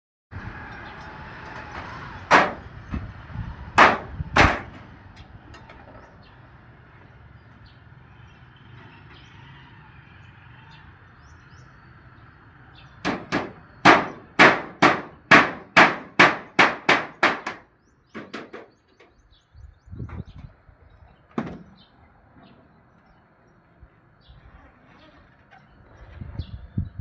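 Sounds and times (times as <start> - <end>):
hammer blows: 3.8 - 4.8, 13.0 - 17.6.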